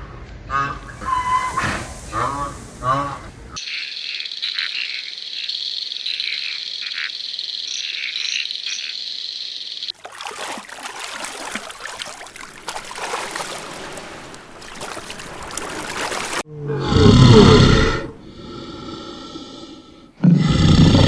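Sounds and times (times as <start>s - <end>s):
dense crackling hissing noise: 0.9s - 3.6s
frogs trilling and croaking: 0.9s - 16.4s.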